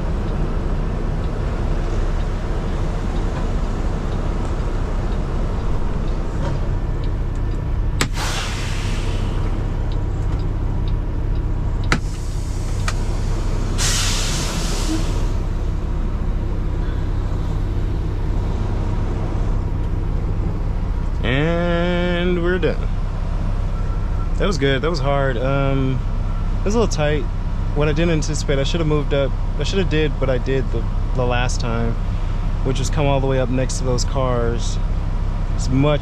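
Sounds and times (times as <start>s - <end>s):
diesel truck engine idling: 0.0s - 36.0s
air brake hissing release: 8.0s - 9.7s, 11.9s - 15.6s.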